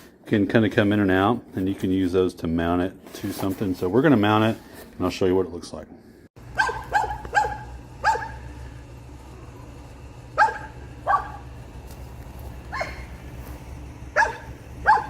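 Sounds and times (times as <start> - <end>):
steady low hum: 0.0 - 15.0
dog barking: 6.5 - 8.5, 10.4 - 11.5, 12.7 - 13.1, 14.2 - 15.0.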